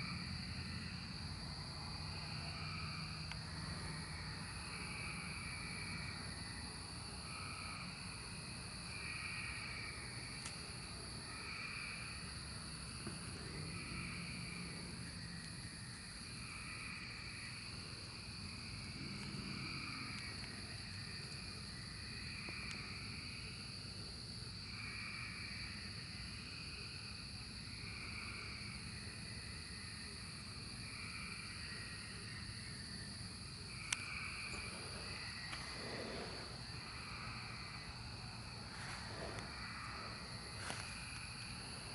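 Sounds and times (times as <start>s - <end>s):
cicadas droning: 0.0s - 41.9s.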